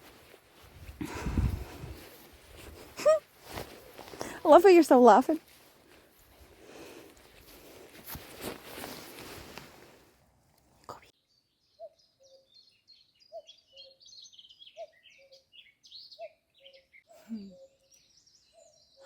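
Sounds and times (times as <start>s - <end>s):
small birds twittering: 11.1s - 19.0s.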